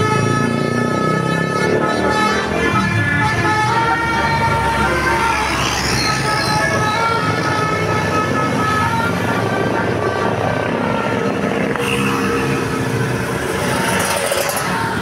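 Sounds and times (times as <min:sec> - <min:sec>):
bus passing close by: 0:03.2 - 0:15.0.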